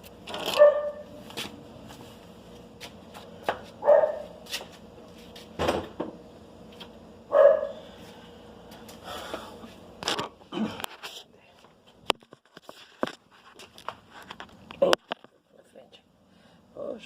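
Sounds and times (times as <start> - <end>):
dog barking: 0.5 - 1.1, 3.8 - 4.4, 7.3 - 7.8.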